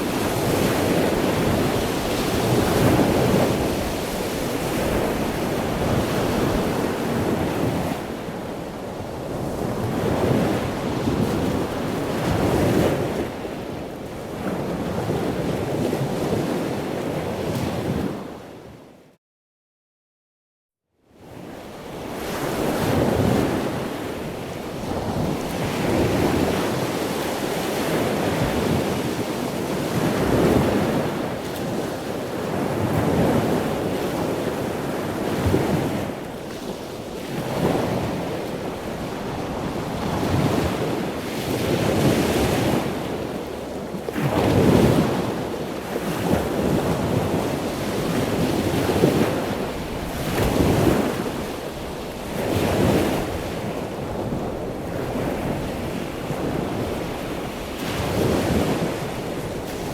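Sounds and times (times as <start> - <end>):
ocean waves breaking: 0.0 - 8.2, 22.0 - 59.9.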